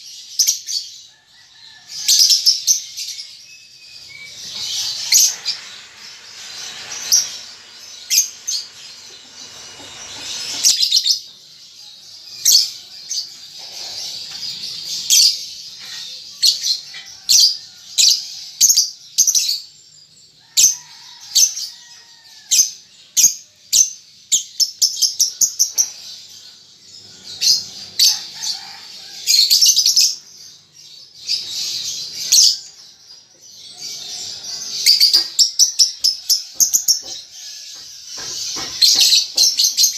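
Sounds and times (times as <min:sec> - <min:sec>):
lovebirds chirping: 0:00.0 - 0:19.8
bird chattering trills: 0:04.0 - 0:11.3.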